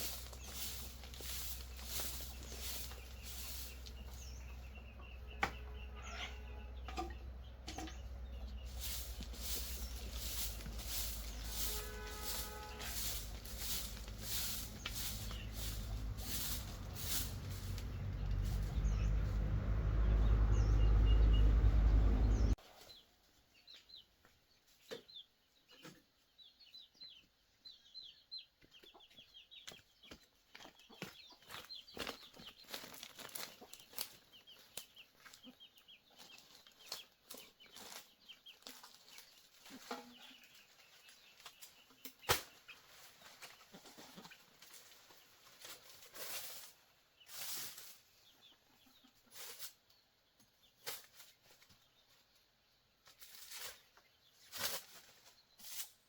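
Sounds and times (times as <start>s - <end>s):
chickens clucking and peeping: 0.0s - 53.2s
loud low rumbling: 6.6s - 22.6s.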